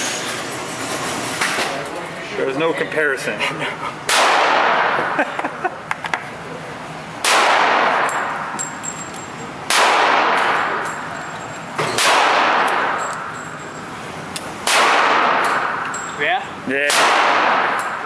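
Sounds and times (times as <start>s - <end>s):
gunshots with ringing echo: 4.1s - 5.0s, 7.2s - 8.5s, 9.7s - 10.8s, 12.0s - 13.3s, 14.6s - 15.9s, 16.9s - 18.0s.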